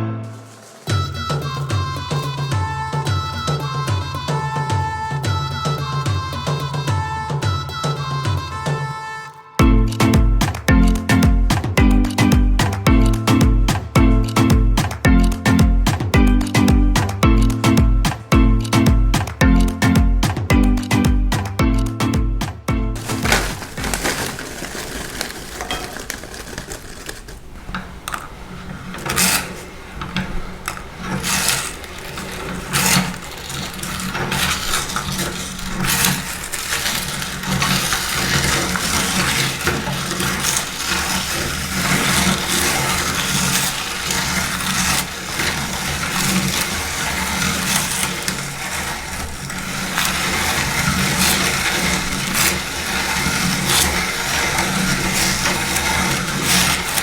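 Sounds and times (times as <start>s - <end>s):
dry food crunching: 0.2s - 6.9s, 22.9s - 57.0s
meat grinder motor hum: 23.0s - 57.0s.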